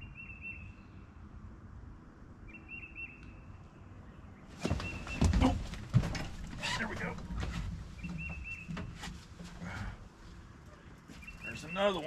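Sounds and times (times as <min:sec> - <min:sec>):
thumps and rattling on boat deck: 0:04.6 - 0:10.1.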